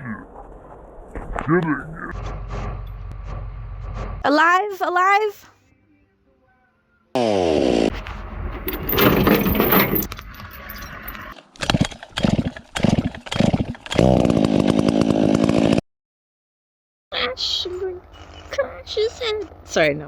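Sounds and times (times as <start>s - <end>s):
chainsaw engine revving: 7.2s - 8.0s, 12.2s - 15.8s.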